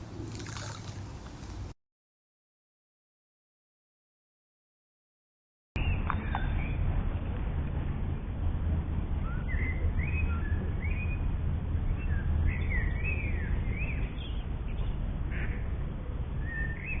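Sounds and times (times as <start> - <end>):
songbirds singing: 5.8 - 7.5, 9.2 - 17.0.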